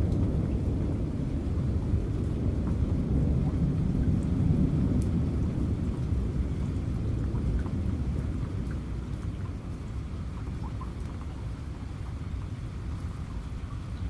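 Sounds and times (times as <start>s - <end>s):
low thunder rumble: 0.0s - 11.8s
rain falling: 0.0s - 14.0s.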